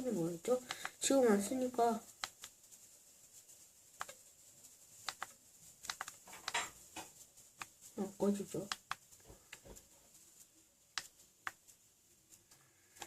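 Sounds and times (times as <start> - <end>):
plastic gadgets clicking: 5.0 - 6.7.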